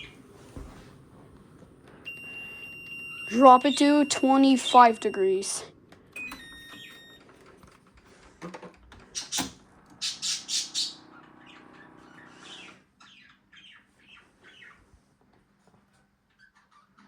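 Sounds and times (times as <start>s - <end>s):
bird squawks and chirps: 9.2s - 14.8s.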